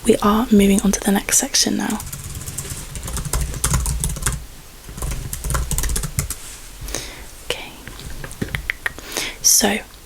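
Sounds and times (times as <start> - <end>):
keyboard typing clicks: 1.8 - 6.4.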